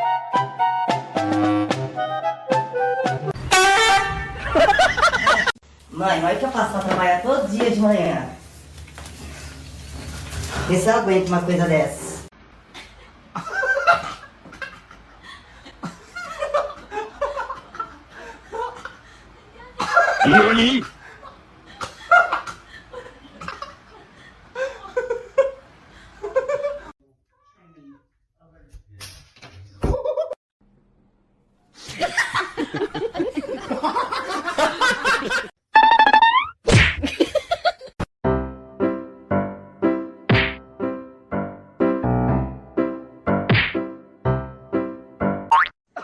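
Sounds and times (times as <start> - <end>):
people laughing: 4.3 - 5.6, 12.8 - 26.9, 31.8 - 35.5
person laughing: 19.8 - 21.0.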